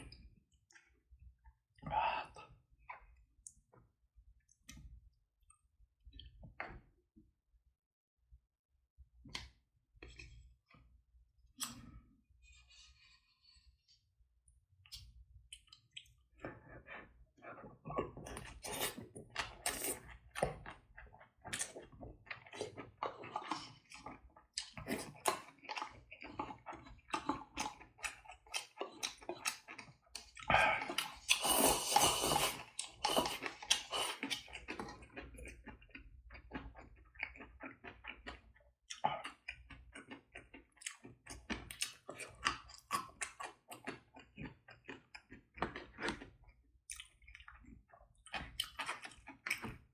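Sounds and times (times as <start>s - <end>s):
person chewing: 11.6s - 13.9s, 18.0s - 49.9s.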